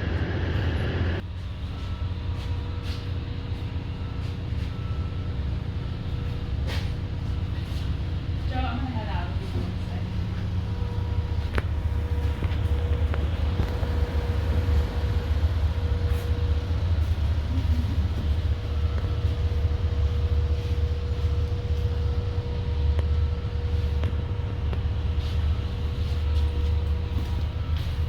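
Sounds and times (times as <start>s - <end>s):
constant hum: 0.0s - 28.0s
low mechanical rumble: 0.0s - 28.0s.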